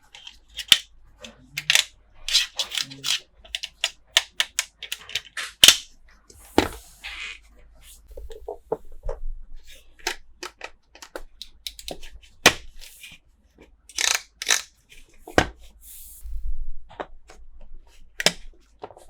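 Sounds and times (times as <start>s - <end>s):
plastic pieces clicking: 0.0s - 5.9s, 10.0s - 13.0s, 13.9s - 14.8s.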